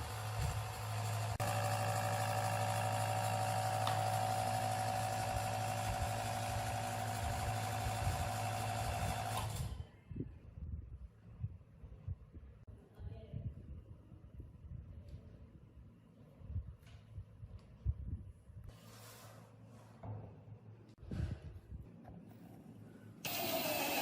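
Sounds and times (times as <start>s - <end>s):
small electric motor humming: 0.0s - 9.7s, 23.2s - 24.0s.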